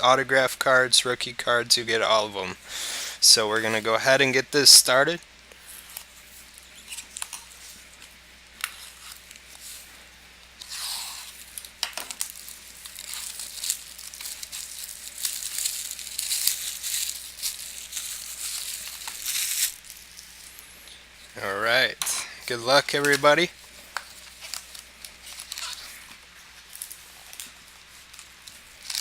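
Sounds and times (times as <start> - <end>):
plastic wrapping tearing and crinkling: 10.6 - 20.6, 22.4 - 29.0.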